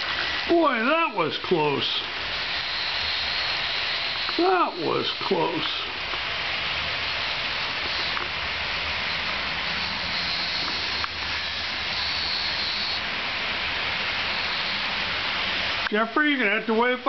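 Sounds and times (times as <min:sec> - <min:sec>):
faint high squeal: 0:09.1 - 0:13.0.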